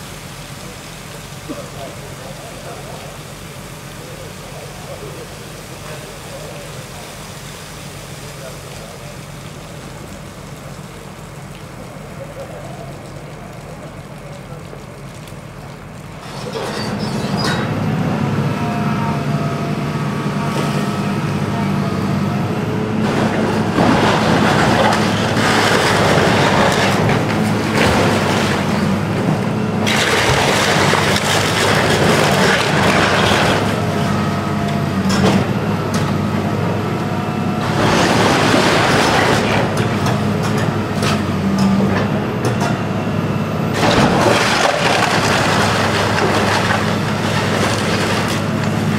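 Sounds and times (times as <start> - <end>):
diesel engine under load: 0.0 - 48.9
crunching and clattering debris: 23.0 - 34.1, 37.6 - 42.6, 43.8 - 48.9.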